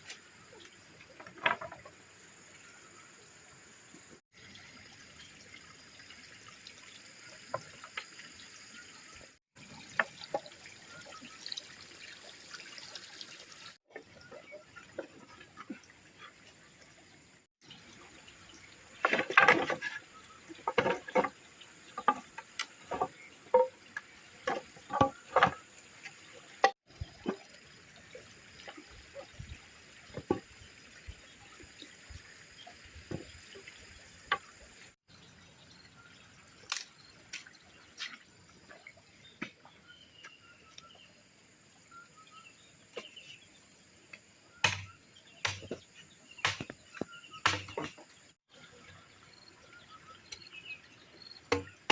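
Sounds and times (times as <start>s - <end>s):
water trickling: 0.2s - 41.1s, 48.1s - 51.8s
water splashing and dripping: 3.4s - 41.0s, 42.8s - 51.9s.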